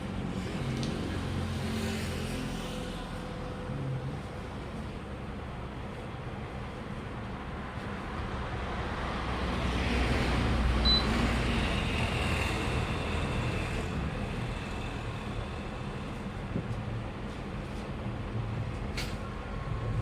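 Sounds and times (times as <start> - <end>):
vehicle passing by: 0.0 - 4.3.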